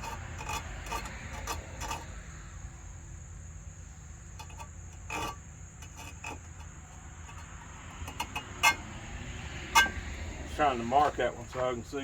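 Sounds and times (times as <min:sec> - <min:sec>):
file scraping saw blade: 0:00.0 - 0:02.1, 0:07.4 - 0:08.9, 0:09.6 - 0:10.2.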